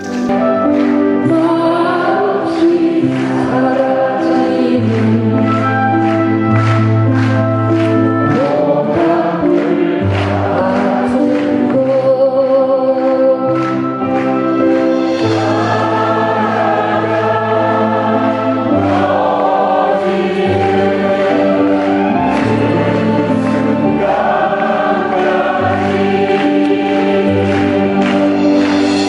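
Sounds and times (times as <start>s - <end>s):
crowd singing folk song: 0.0s - 29.0s
live band accompaniment: 0.0s - 29.0s.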